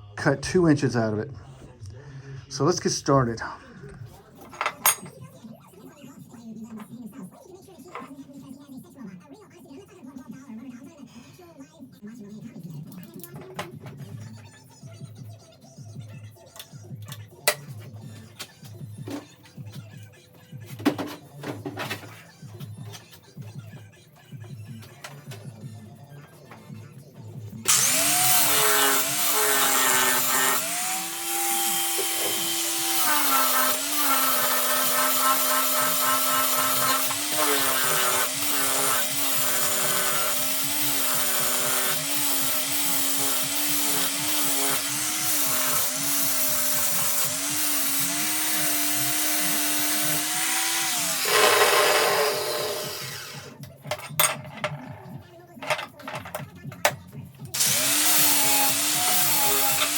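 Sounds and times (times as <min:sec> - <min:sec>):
power tool cutting metal: 0:27.6 - 0:53.6, 0:57.6 - 0:59.9.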